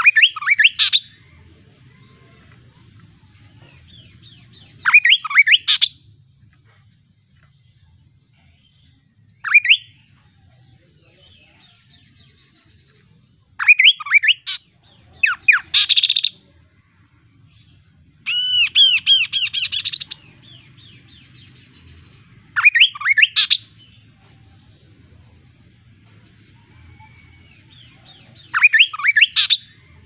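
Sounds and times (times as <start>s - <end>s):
bird singing whistled phrases: 0.0s - 1.2s, 4.8s - 6.0s, 9.4s - 10.2s, 13.6s - 14.6s, 18.3s - 20.2s, 22.6s - 23.7s, 27.1s - 29.8s.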